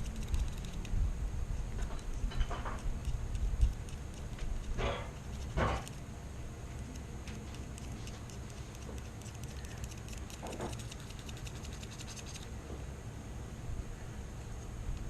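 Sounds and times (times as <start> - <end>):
tool scraping metal parts: 4.1 - 6.0.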